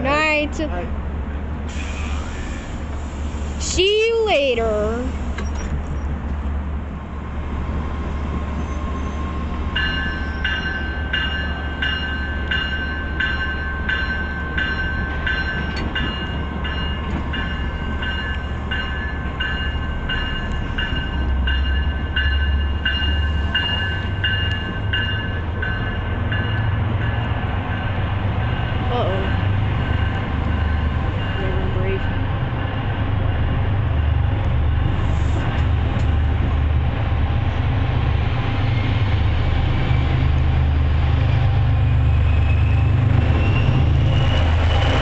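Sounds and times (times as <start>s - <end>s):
diesel locomotive rumbling: 0.0s - 45.0s
locomotive bell ringing: 9.0s - 33.0s.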